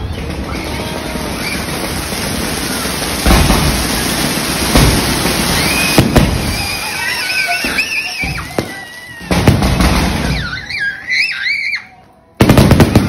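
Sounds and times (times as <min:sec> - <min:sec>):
loud firework bangs: 0:00.0 - 0:10.7, 0:12.4 - 0:13.0
fireworks crackling: 0:00.0 - 0:11.3, 0:12.3 - 0:13.0.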